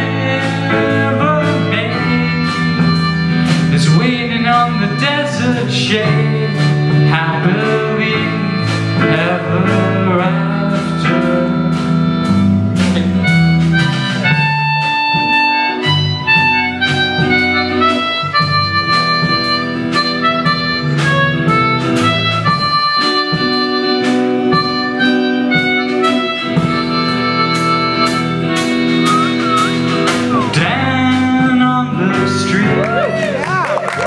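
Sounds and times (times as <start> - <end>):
accordion melody: 0.0 - 33.0
steady beat: 0.0 - 34.0.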